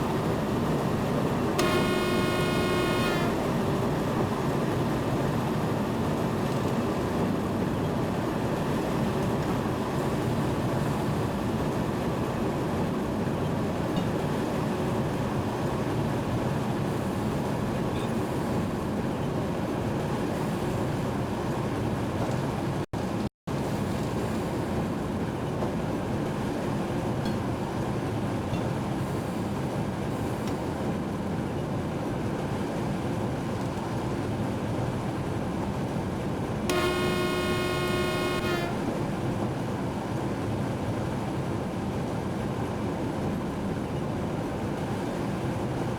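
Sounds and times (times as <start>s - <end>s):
train horn blast: 0.0s - 4.8s, 36.7s - 39.5s
train running: 0.0s - 22.7s, 23.6s - 45.9s.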